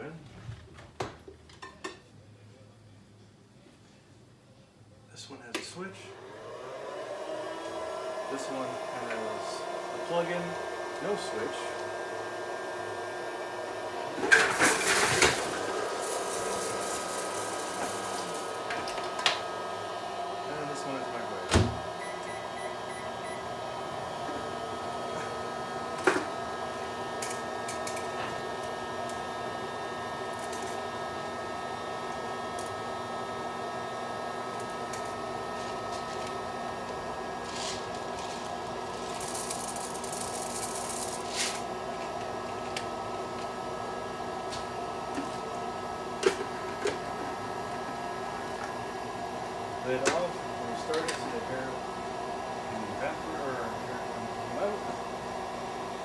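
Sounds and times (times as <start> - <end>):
microwave oven humming: 21.4 - 52.8.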